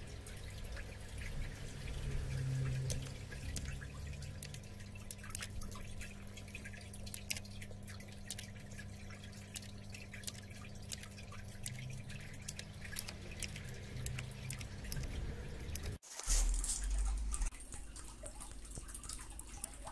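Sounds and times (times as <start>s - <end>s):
low steady hum: 0.0s - 19.9s
keyboard keys clicking: 2.8s - 5.6s, 7.1s - 7.5s, 9.5s - 16.0s.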